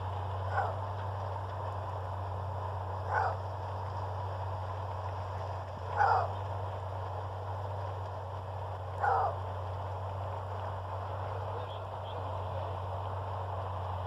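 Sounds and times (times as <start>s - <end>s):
steady low hum: 0.0s - 14.0s
maned wolf roar-barking: 0.4s - 0.9s, 3.0s - 3.5s, 5.9s - 6.4s, 9.0s - 9.5s.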